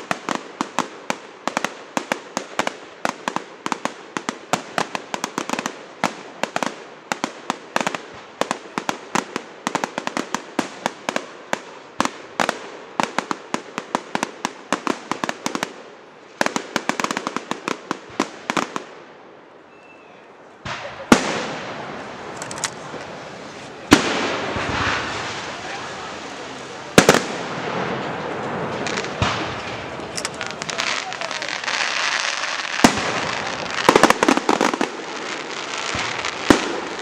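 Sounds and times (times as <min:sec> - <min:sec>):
fireworks crackling: 0:00.0 - 0:19.7, 0:20.3 - 0:37.0
firework bang: 0:20.6 - 0:37.0
hissing rush: 0:20.6 - 0:37.0.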